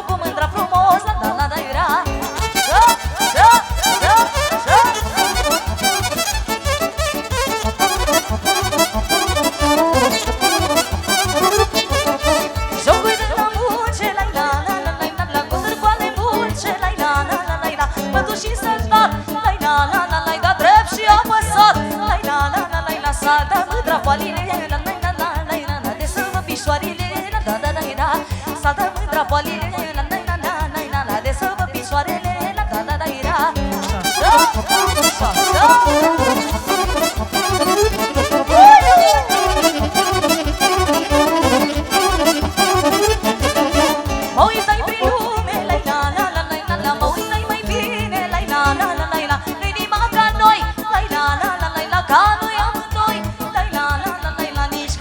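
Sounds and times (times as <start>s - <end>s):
live party music: 0.0s - 17.1s, 33.3s - 53.9s.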